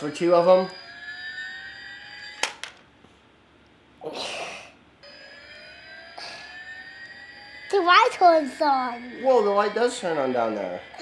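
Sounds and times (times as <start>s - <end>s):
toy electronic siren wailing: 0.0s - 2.8s, 5.0s - 11.0s.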